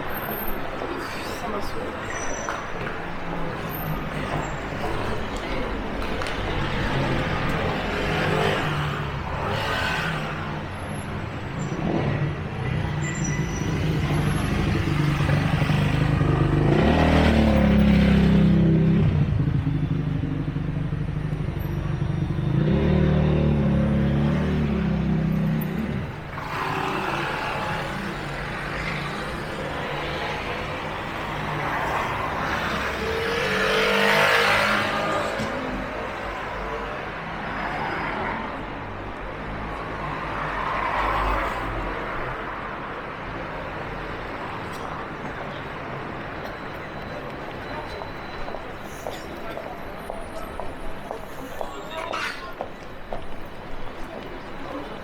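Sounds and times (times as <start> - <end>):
motor vehicles passing: 0.6 - 55.0.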